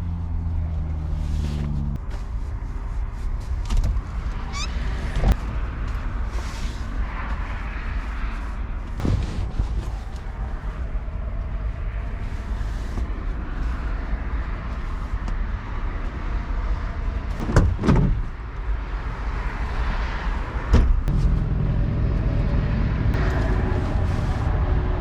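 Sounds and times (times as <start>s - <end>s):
vehicle low rumble: 0.0s - 25.0s
steady hum: 21.1s - 25.0s.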